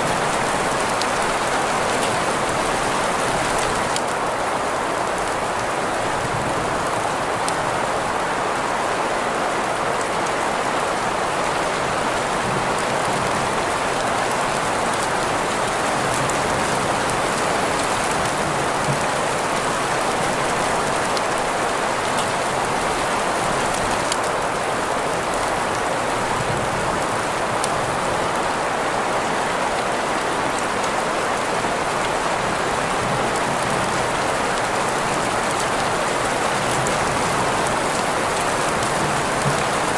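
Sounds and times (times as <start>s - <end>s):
rain drops ticking: 10.0s - 28.6s, 30.5s - 39.9s.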